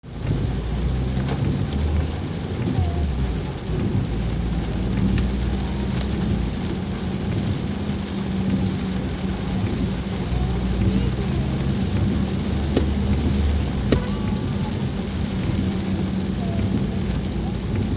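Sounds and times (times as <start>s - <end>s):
heavy rain falling: 0.0s - 17.9s
low rumble: 0.0s - 17.9s
sharp drip ticks: 0.2s - 14.4s.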